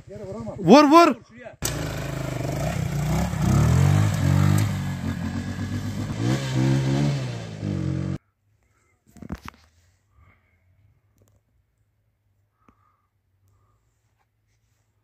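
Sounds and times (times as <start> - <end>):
motorcycle engine revving: 1.6 - 8.2.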